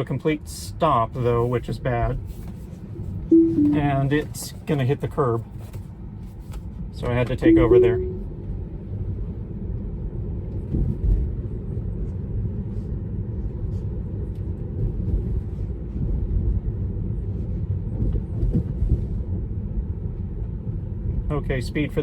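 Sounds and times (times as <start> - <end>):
tyre and road noise in car cabin: 10.0 - 22.0.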